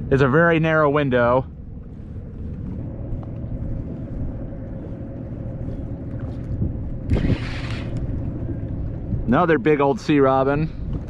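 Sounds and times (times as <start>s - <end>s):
faint steady hum: 0.0s - 11.0s
steady low rumble: 0.0s - 11.0s
short loud rush of noise: 7.1s - 8.0s.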